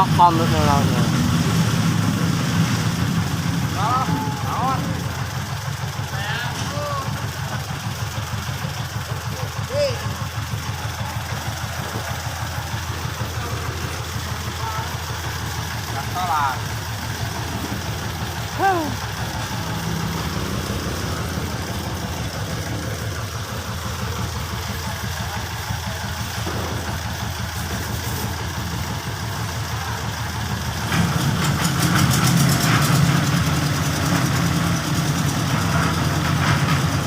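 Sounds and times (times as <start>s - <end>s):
small engine running: 0.0s - 37.0s
rattling clatter: 3.0s - 37.0s.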